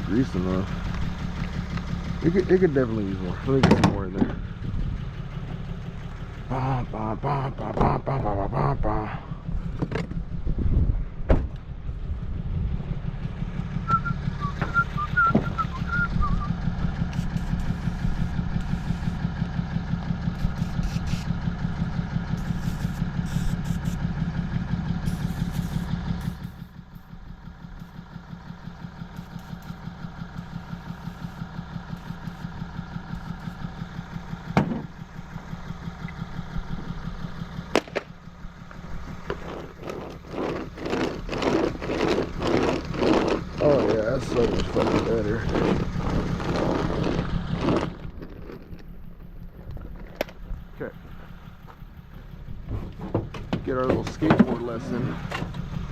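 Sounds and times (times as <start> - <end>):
short high squeaks: 13.9 - 19.2, 20.4 - 21.4
machine running with fast pulse: 39.4 - 48.8.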